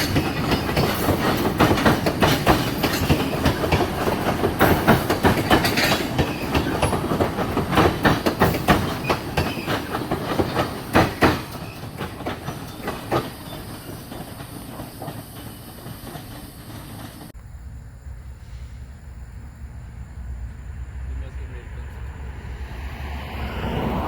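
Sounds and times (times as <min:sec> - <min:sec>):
train wheels clacking over rail joints: 0:00.0 - 0:17.3
train rumble: 0:00.0 - 0:24.0.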